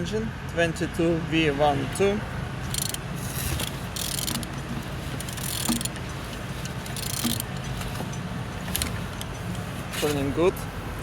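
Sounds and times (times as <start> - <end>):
engine turned over by hand: 2.6 - 10.3.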